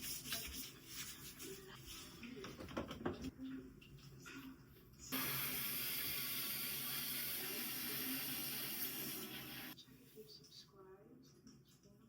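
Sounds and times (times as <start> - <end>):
water running from a tap: 5.1 - 9.8.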